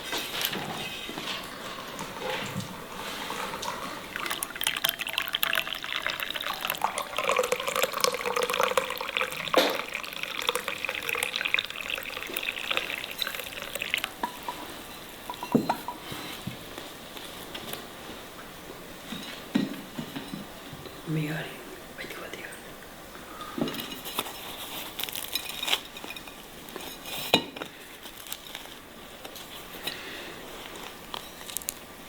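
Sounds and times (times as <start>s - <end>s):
tap water running into sink: 1.4s - 14.7s.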